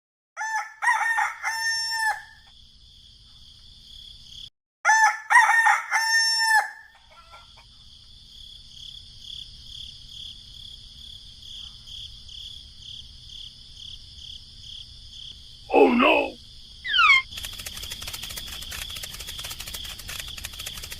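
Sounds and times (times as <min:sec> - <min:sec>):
rooster crowing: 0:00.4 - 0:02.5, 0:04.9 - 0:07.6
pulsing insect chirring: 0:15.2 - 0:20.9.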